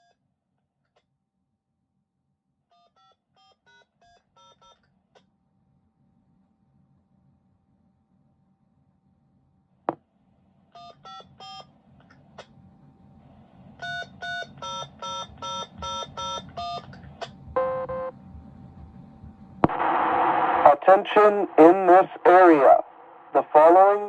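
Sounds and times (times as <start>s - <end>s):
long low beep: 17.6s - 18.2s
dtmf tones through radio speaker: 19.6s - 24.0s.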